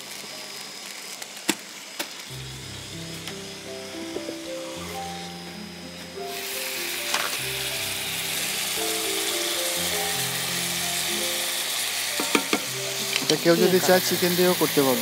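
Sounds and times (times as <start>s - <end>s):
skewers sizzling in a pan: 0.0s - 15.0s
background music with held notes: 2.3s - 15.0s
spatula knocking on pan: 12.2s - 12.7s.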